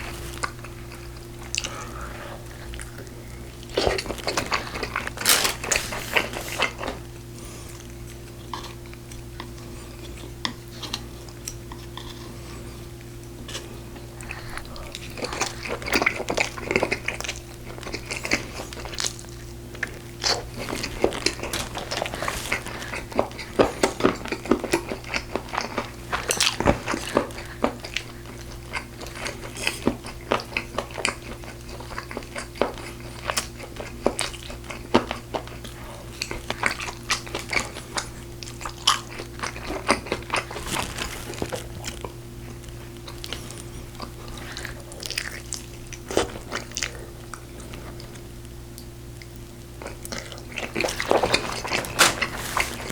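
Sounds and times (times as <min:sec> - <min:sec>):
person chewing food: 0:00.0 - 0:48.2, 0:48.8 - 0:52.9
wet crunches: 0:03.8 - 0:07.0, 0:18.1 - 0:24.3, 0:38.6 - 0:43.4, 0:50.6 - 0:52.9.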